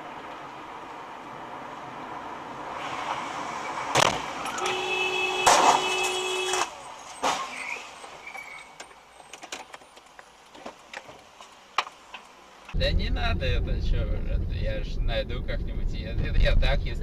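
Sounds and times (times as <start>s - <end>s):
road noise: 0.0s - 17.0s
horn tone: 4.5s - 6.7s
loud bang: 12.8s - 14.9s.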